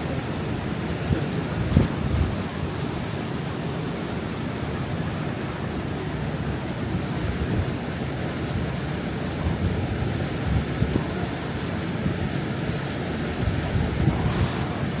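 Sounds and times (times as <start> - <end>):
wind rumbling on microphone: 0.0 - 3.1, 6.9 - 15.0
water rushing: 0.0 - 15.0.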